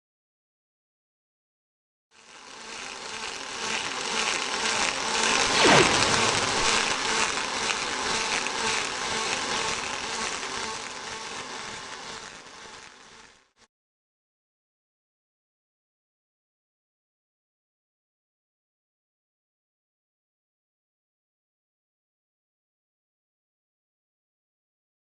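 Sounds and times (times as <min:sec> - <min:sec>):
arc welding torch crackling: 0:02.2 - 0:13.7.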